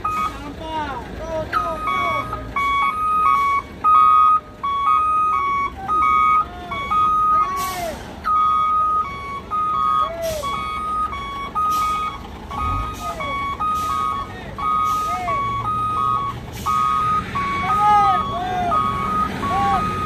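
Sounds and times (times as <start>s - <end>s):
truck engine rumble: 0.0s - 20.0s
truck reversing alarm beeping: 0.0s - 20.0s.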